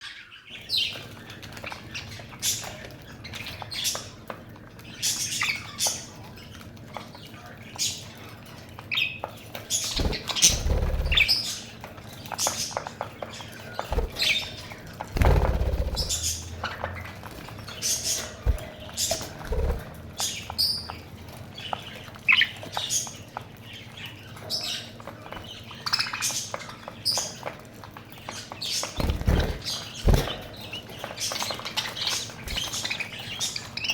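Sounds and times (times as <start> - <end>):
budgerigars chirping: 9.0 - 21.0, 28.2 - 33.9.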